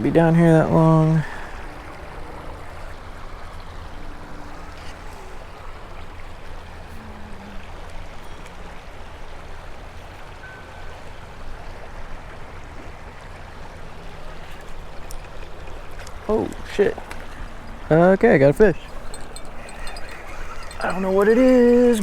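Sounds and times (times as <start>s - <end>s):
creek water flowing: 0.0s - 22.0s.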